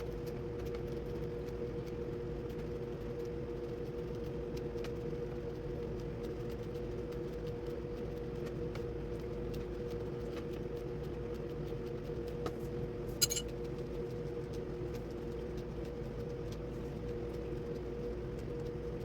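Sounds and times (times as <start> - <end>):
steady low hum: 0.0 - 19.0
sharp ringing clink: 13.2 - 13.4.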